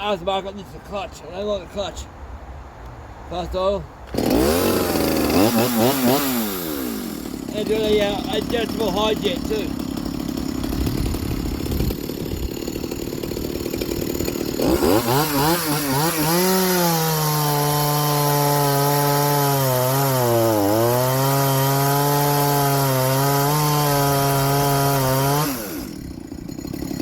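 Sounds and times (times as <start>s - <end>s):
chainsaw idling and revving: 4.1s - 27.0s.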